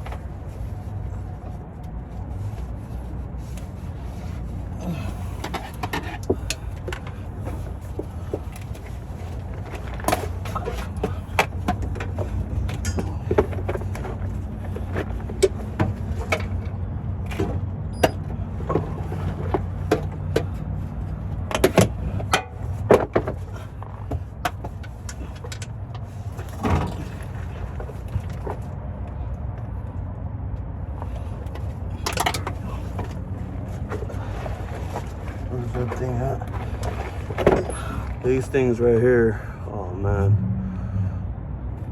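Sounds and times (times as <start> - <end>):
steady low hum: 0.0 - 41.9
hand tools clinking on metal: 10.0 - 14.0.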